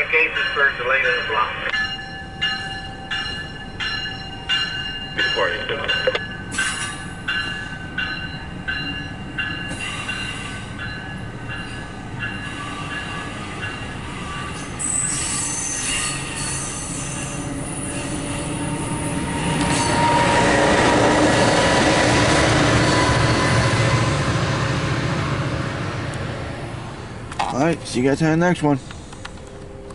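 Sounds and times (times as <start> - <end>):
bell ringing: 0.0 - 6.5
train rolling wheel noise: 0.0 - 29.9.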